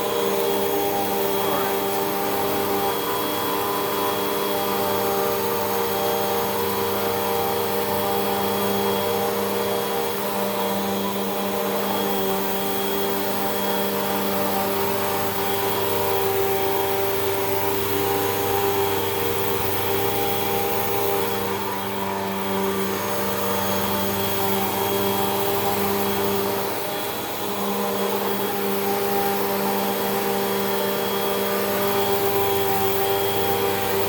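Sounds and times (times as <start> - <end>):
vacuum cleaner motor humming: 0.0 - 34.0.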